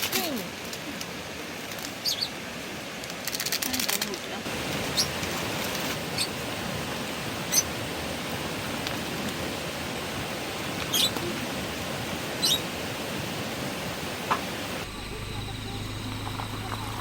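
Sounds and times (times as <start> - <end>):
steady rushing background noise: 0.0 - 17.0
lovebird shrill chirps: 10.9 - 11.2, 12.4 - 12.7.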